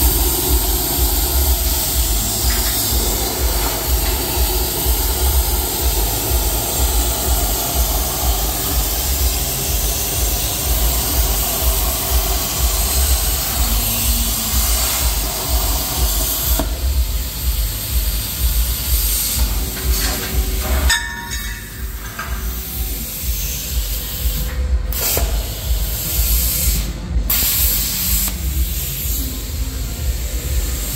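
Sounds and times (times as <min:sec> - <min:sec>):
low rumble: 0:00.0 - 0:17.7
plasma cutter hissing: 0:00.0 - 0:30.9.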